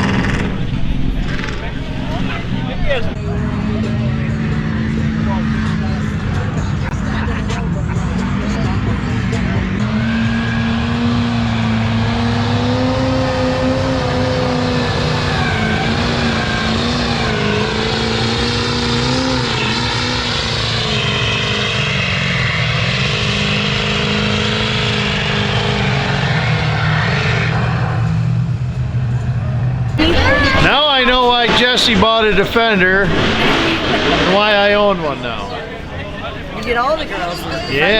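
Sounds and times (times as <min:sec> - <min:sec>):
off-road vehicle engine running: 0:00.0 - 0:27.2.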